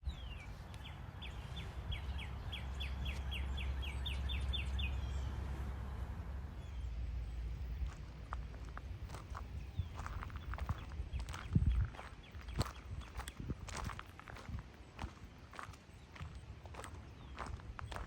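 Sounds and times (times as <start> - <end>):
low outdoor rumble: 0.0 - 18.0
faint footsteps: 2.9 - 3.5, 7.4 - 18.0.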